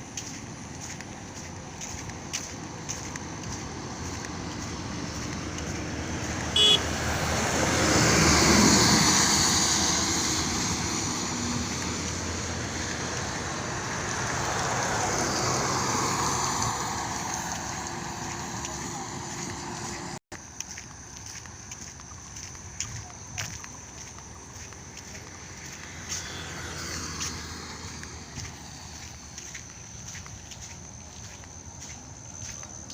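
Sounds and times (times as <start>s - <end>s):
vehicles passing on highway: 0.0s - 32.9s
car horn toot: 6.5s - 7.0s.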